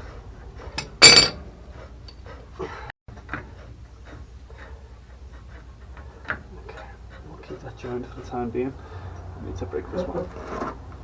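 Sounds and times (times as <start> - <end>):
metal tools clinking: 0.8 - 1.4
ringing metallic clank: 0.8 - 1.5.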